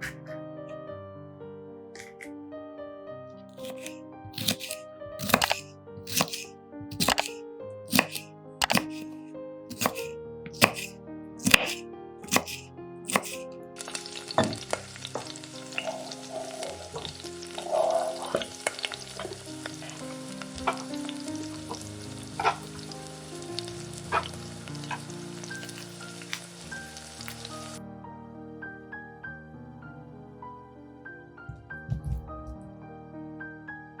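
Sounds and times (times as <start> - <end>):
stirring clicks: 3.6 - 13.4
food sizzling in hot oil: 9.7 - 27.8.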